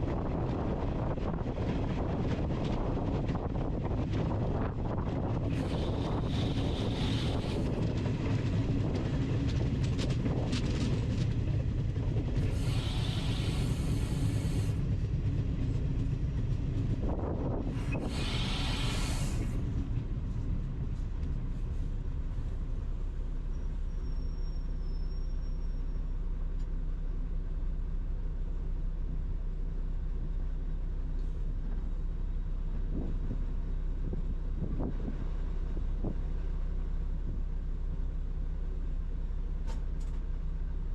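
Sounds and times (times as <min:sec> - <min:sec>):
train rumbling: 0:00.0 - 0:40.9
bursts of hiss: 0:12.5 - 0:14.8, 0:17.8 - 0:19.6.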